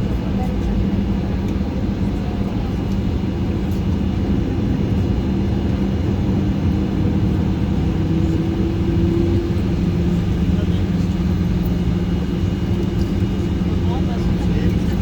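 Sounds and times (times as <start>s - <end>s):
jet engines humming: 0.0s - 15.0s.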